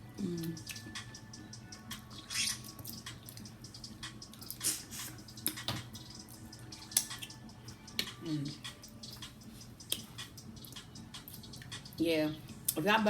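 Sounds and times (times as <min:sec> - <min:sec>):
wet smacking and chewing: 0:01.9 - 0:11.9.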